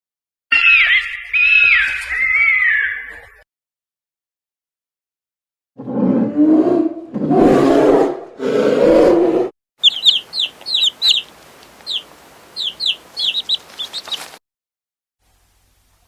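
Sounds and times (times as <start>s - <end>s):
high downward-sweeping bird chirps: 0.5s - 3.1s, 9.8s - 14.4s
loud animal roars: 5.8s - 9.5s.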